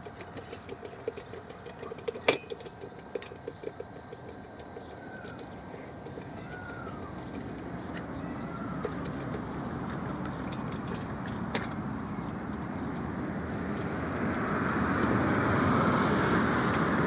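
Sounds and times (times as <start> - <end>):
traffic noise: 0.0 - 17.0
bird whistling calls: 4.8 - 8.8.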